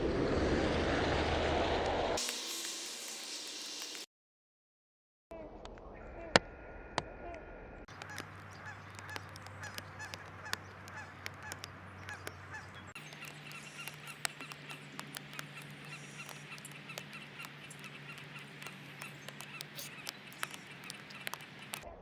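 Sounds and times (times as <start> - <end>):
birds calling in short notes: 7.9 - 21.9
sharp clicks: 7.9 - 21.9.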